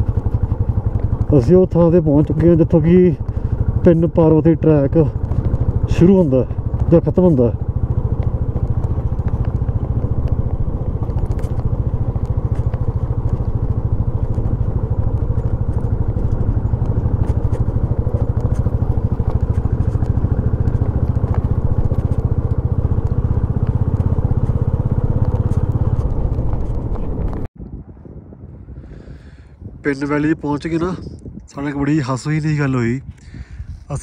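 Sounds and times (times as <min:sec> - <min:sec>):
motorcycle engine droning: 0:00.0 - 0:34.0.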